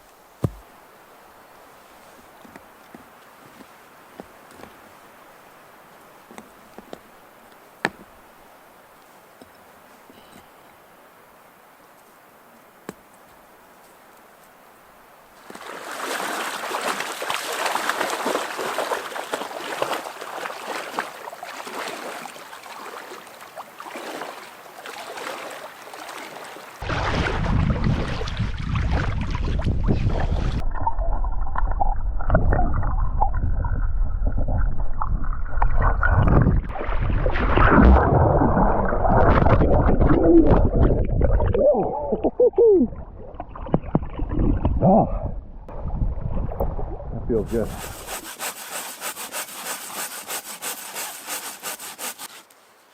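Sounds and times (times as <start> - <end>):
water splashing and sloshing: 15.4 - 44.9, 45.7 - 52.6.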